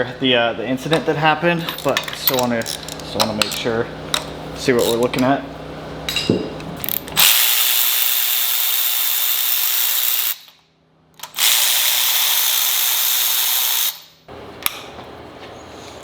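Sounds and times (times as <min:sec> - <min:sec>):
handheld power tool running: 0:06.8 - 0:10.5, 0:11.2 - 0:14.1.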